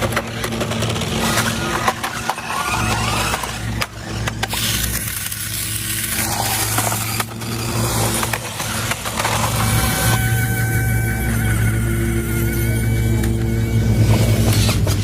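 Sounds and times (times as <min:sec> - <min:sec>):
vehicle motor running: 0:00.0 - 0:15.0.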